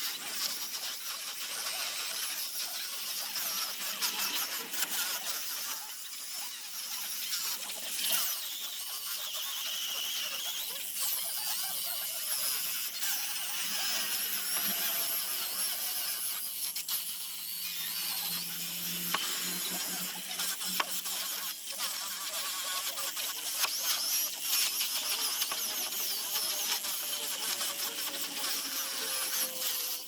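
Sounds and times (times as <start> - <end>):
power tool sanding wood: 12.4 - 30.0.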